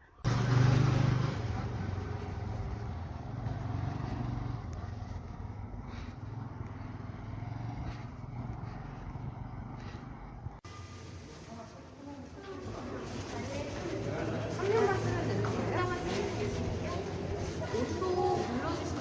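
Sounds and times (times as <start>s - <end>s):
road noise: 0.0s - 19.0s
motor vehicle engine drone: 0.2s - 11.5s.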